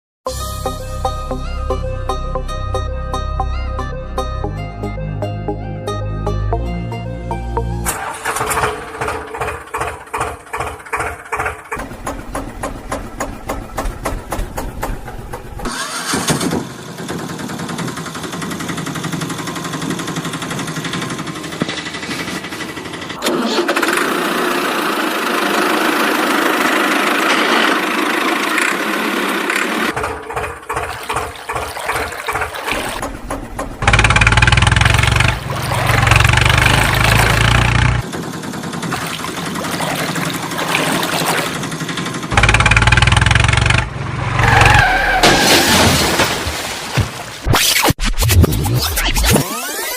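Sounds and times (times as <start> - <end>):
tractor and backhoe engines: 6.5 - 46.2.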